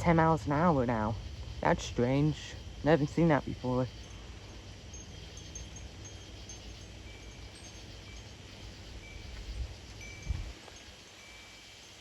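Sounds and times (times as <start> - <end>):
low rumble of wind: 0.0 - 12.0
wind chimes ringing: 3.9 - 12.0.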